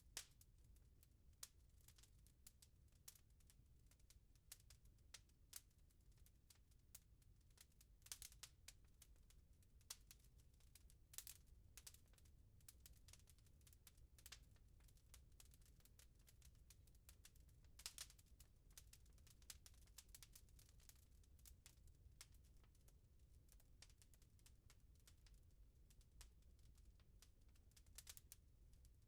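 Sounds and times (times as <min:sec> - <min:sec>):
wood fire crackling and popping: 0:00.1 - 0:00.4, 0:01.4 - 0:02.6, 0:07.6 - 0:22.8, 0:27.6 - 0:28.4.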